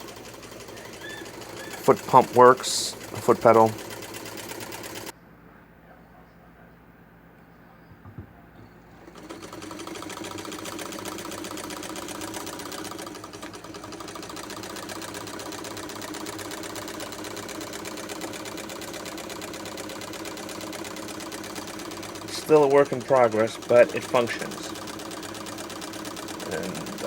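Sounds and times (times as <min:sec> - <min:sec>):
sewing machine clattering: 0:00.0 - 0:05.1, 0:08.9 - 0:27.0.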